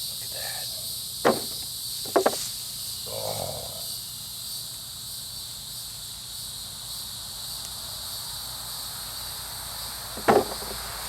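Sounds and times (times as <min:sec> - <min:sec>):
high-pitched insect chorus: 0:00.0 - 0:11.0
sharp knock: 0:01.2 - 0:02.4, 0:10.2 - 0:10.8.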